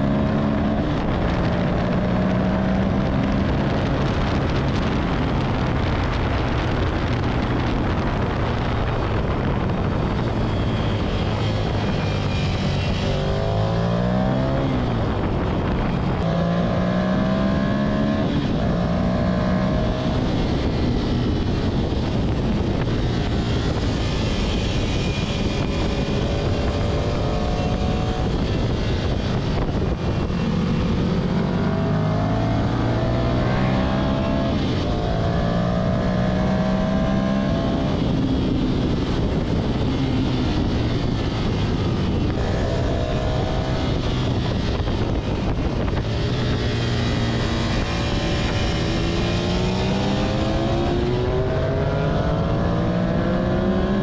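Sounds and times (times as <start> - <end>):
motorcycle engine revving: 0.0 - 54.0
wind rush over microphone: 0.0 - 54.0.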